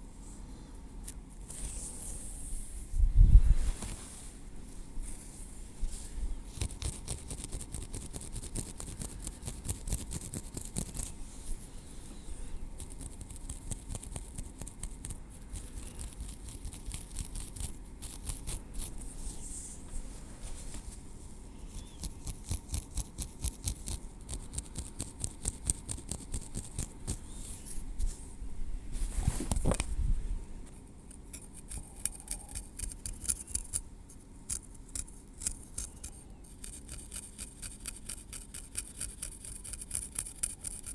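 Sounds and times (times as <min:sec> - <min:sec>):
rubbing sound: 0:01.4 - 0:11.6, 0:16.2 - 0:21.4, 0:25.4 - 0:29.9
tweezers clicking through hair: 0:31.2 - 0:33.8, 0:34.5 - 0:40.9.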